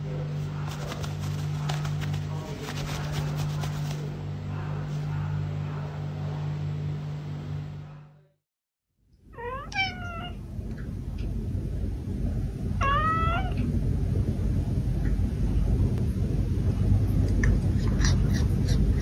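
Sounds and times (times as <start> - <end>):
low hum: 0.0 - 8.4, 9.0 - 19.0
cat meowing: 9.4 - 10.4, 12.8 - 13.6.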